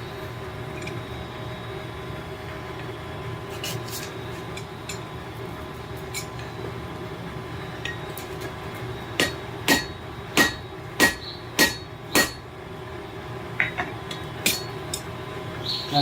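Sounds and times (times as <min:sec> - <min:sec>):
steady hum: 0:00.0 - 0:16.0
hammer ringing on anvil: 0:09.2 - 0:12.5, 0:14.4 - 0:14.8.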